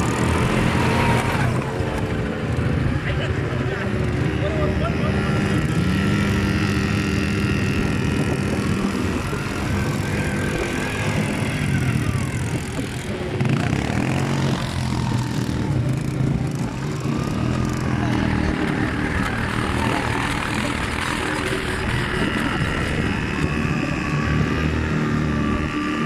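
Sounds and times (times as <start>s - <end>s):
motorbike engine running: 0.0s - 26.0s.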